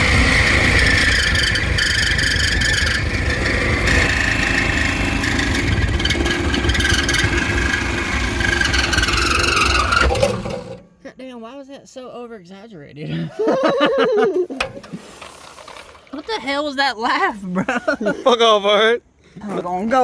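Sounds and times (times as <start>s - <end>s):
power saw cutting metal pipe: 0.0s - 10.9s.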